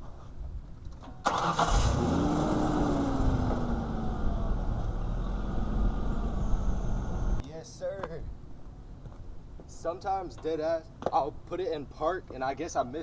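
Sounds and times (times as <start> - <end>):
engine starting and idling: 1.2 - 7.4.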